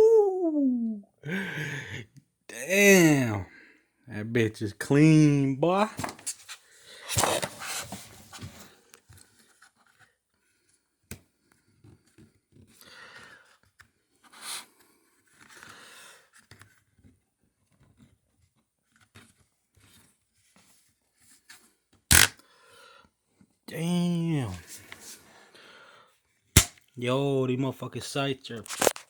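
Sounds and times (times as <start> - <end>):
small clicks of a rifle: 22.1 - 22.4.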